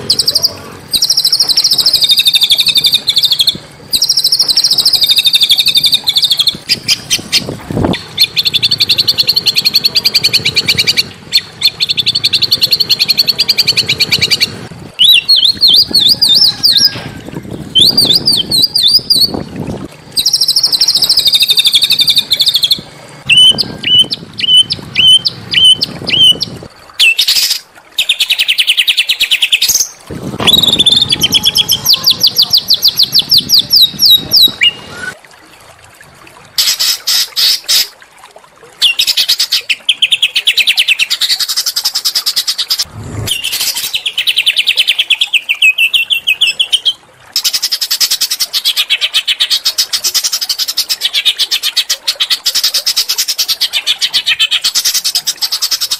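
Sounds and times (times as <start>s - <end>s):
songbirds trilling and chirping: 0.0s - 19.5s, 20.2s - 35.2s.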